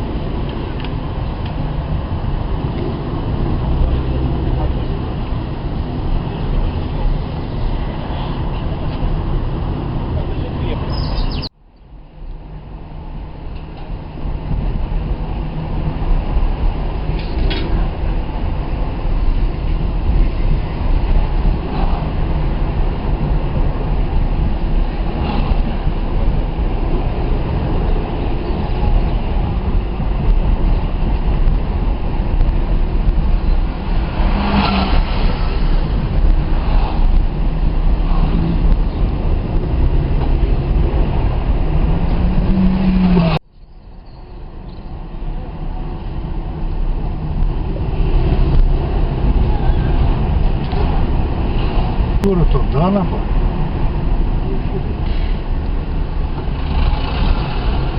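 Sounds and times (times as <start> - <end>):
car road and engine noise: 0.0 - 57.9.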